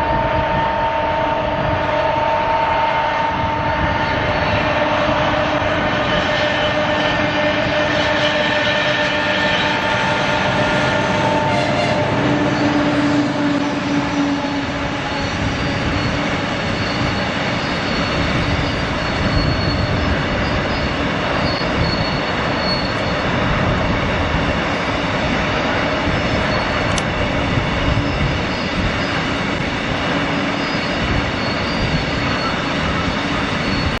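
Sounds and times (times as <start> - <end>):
diesel locomotive drone: 0.0 - 34.0.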